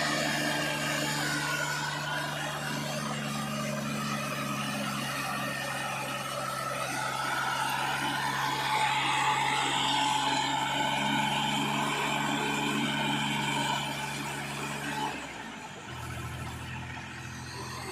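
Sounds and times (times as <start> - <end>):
heavy machinery diesel engine: 0.0 - 17.9.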